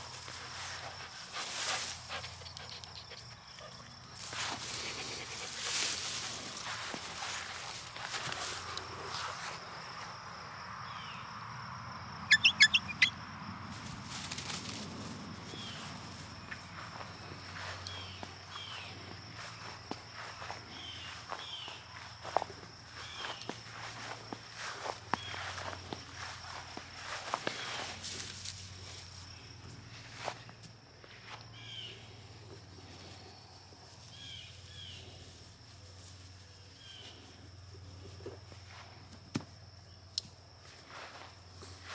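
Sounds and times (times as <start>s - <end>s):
outdoor background noise: 0.0s - 41.9s
bird chirping: 12.2s - 13.2s.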